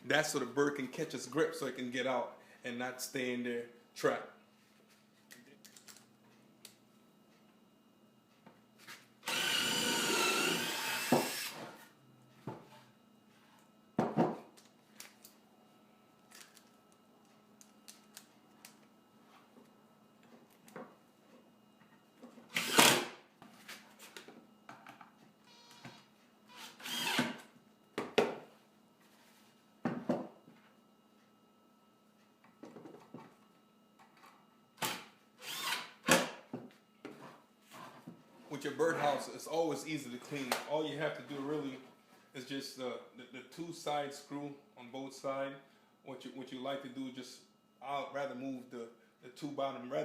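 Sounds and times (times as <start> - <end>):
power drill driving screw: 9.2 - 11.8, 22.5 - 23.1, 26.5 - 27.4, 34.8 - 36.0.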